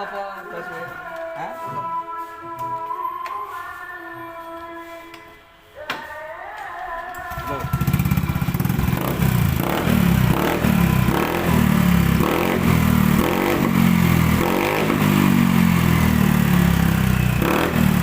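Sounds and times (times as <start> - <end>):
motorcycle engine revving: 7.3 - 18.0.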